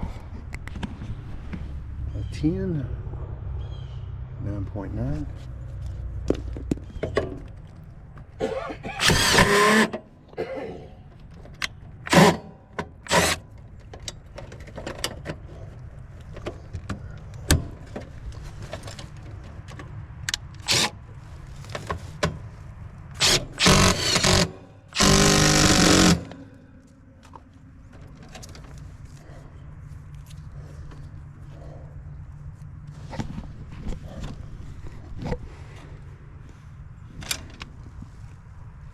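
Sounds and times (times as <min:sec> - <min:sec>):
clicks and knocks of tools: 0:11.1 - 0:20.9
rustling and scraping: 0:13.8 - 0:24.4, 0:26.2 - 0:38.9.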